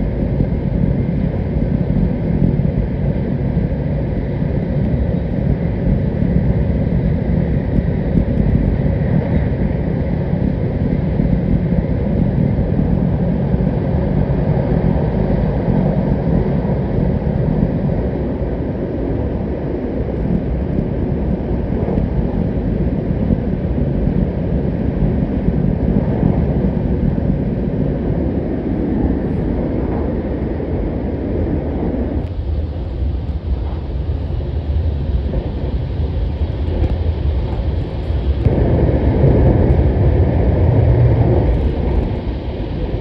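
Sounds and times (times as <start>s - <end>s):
train rumbling through tunnel: 0.0s - 43.0s.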